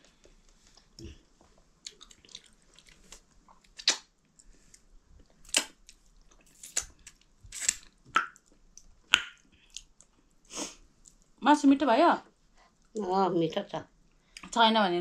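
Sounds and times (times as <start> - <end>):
person chewing food: 0.1 - 10.4.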